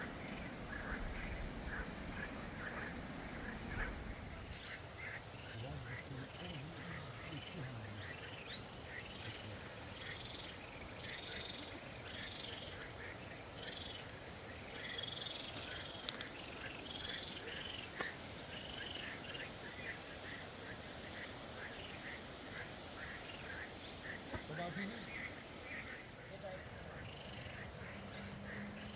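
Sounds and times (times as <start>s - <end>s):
steady background hiss: 0.0s - 28.9s
high chirping animal calls: 24.8s - 28.9s.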